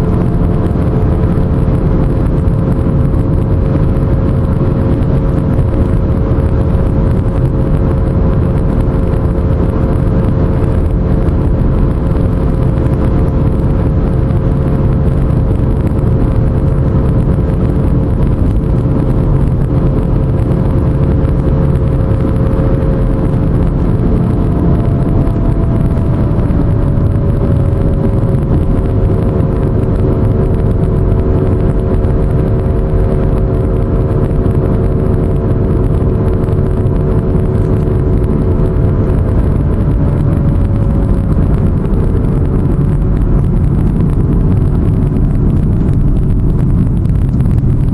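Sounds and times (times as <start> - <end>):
car driving with low rumble: 0.0 - 47.9
droning wheel hum: 0.0 - 47.9.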